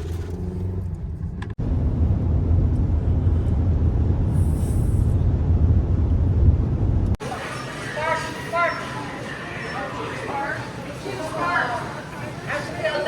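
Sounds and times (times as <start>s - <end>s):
car driving rumble: 0.0s - 7.2s.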